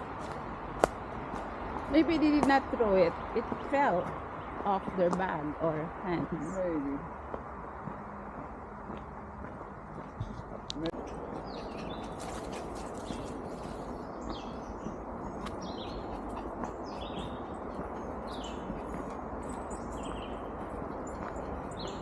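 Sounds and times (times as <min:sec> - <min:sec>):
birds chirping and calling: 0:11.0 - 0:22.0.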